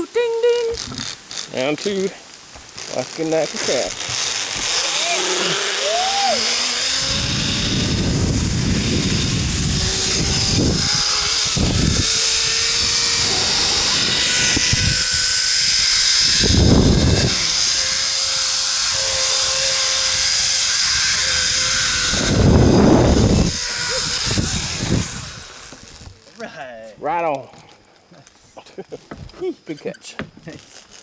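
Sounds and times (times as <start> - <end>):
zip line pulleys whirring: 0.6 - 2.1, 2.7 - 26.2, 30.5 - 31.0
wind buffeting microphone: 6.4 - 18.2, 18.8 - 26.2.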